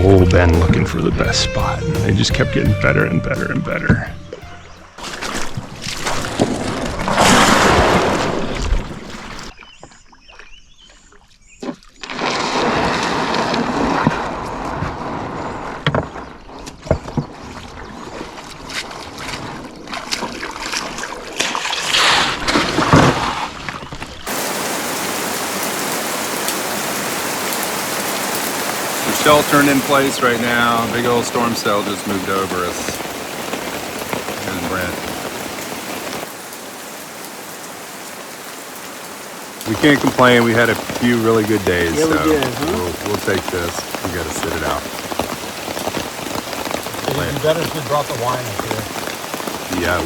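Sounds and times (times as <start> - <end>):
heavy rain pouring: 0.0 - 4.0, 24.2 - 50.0.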